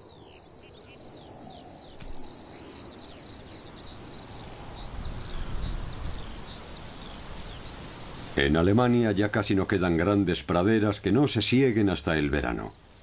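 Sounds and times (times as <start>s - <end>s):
outdoor field hiss: 0.0s - 13.0s
faint click: 2.0s - 2.2s.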